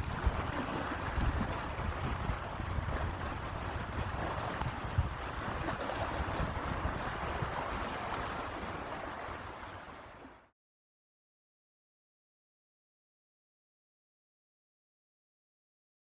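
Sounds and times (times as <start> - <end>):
wind rumble: 0.0 - 9.7
rushing water: 0.0 - 10.6.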